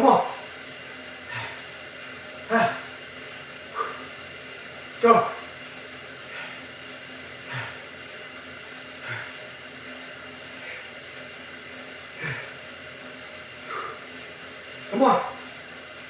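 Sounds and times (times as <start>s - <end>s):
exercise bike whirring: 0.0s - 16.0s
man breathing hard: 1.2s - 1.8s, 3.7s - 4.2s, 6.2s - 8.1s, 8.8s - 11.2s, 12.0s - 12.8s, 13.6s - 14.3s.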